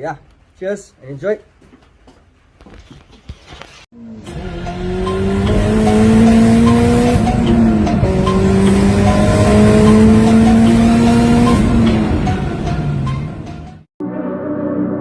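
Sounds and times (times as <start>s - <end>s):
car engine accelerating: 4.0s - 13.9s.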